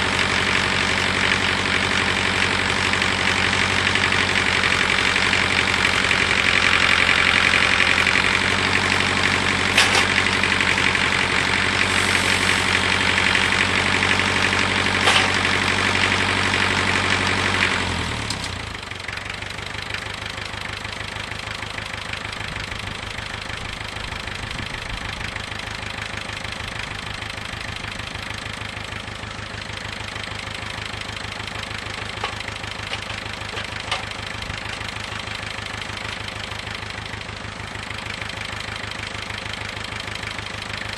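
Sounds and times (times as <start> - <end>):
steady engine-like hum: 0.0 - 40.9
motor-driven machine running: 3.0 - 17.8.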